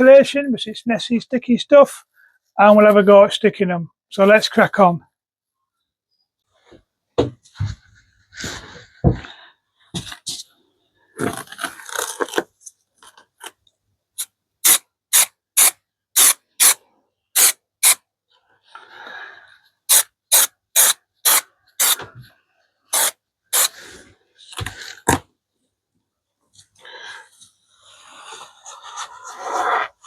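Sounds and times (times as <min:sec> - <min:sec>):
aerosol spray hissing bursts: 0:14.6 - 0:16.8, 0:17.4 - 0:18.0, 0:19.9 - 0:22.0, 0:22.9 - 0:23.7.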